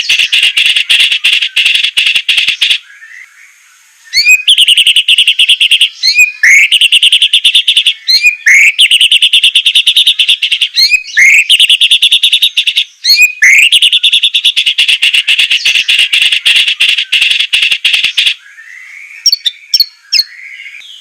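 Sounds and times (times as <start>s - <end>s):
bird harsh rattling chatter: 0.0s - 2.8s, 13.5s - 18.4s.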